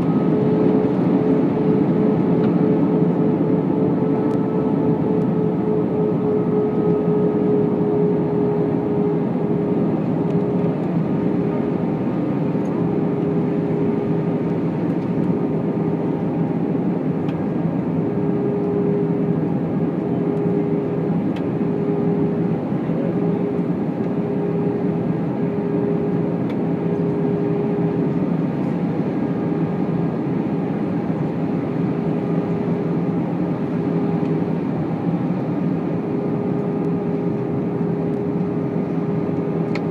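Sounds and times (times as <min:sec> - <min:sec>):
humming tone: 0:00.0 - 0:14.4
jet engine drone: 0:00.0 - 0:39.9.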